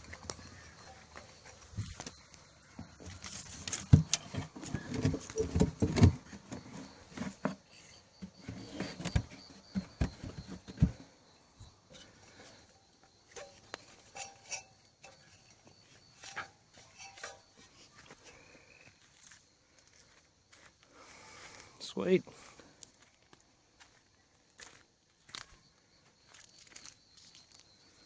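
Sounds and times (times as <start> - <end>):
handling thumps and knocks: 0.0 - 12.2.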